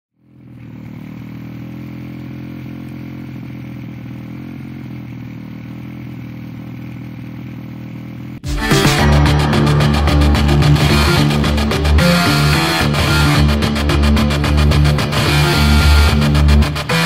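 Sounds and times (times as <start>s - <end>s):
motorbike engine idling: 0.2s - 8.4s
loud rock music: 8.4s - 17.0s.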